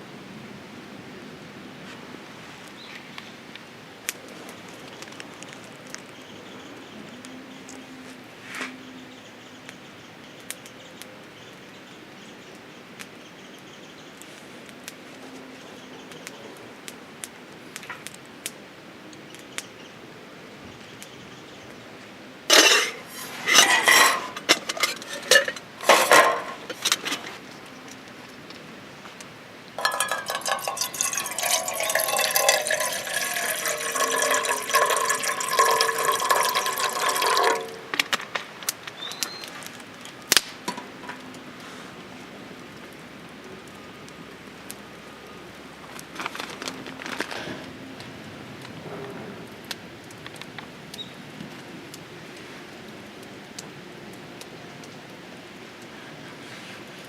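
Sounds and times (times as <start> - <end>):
water pouring into a pot: 22.5 - 27.0, 29.8 - 38.1
camp cookware clinking: 22.5 - 27.4, 29.8 - 38.2.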